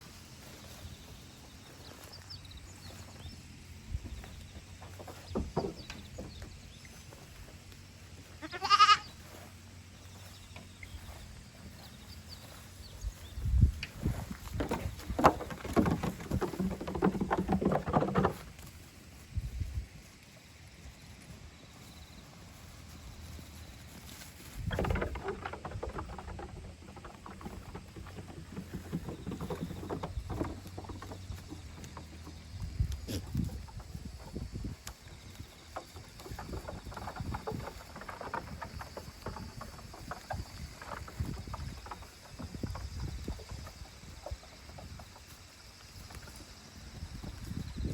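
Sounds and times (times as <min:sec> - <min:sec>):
goat hooves tapping and scuffing: 0:00.0 - 0:47.9
goat kid bleating: 0:08.4 - 0:09.2
dull knocks: 0:14.1 - 0:18.7.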